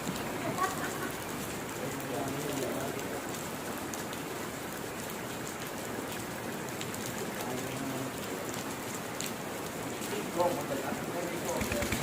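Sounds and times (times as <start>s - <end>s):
rain hiss and patter: 0.0s - 12.0s.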